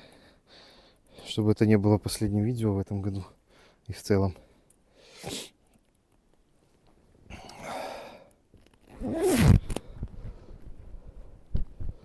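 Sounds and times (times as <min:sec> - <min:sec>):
jacket zipper: 0:08.9 - 0:09.8.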